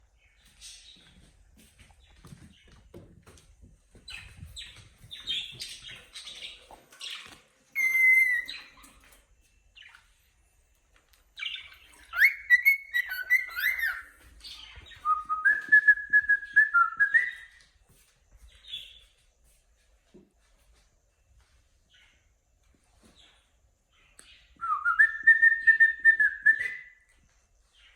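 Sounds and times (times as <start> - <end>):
cockatiel chirping and whistling: 7.8 - 8.8, 11.5 - 14.2.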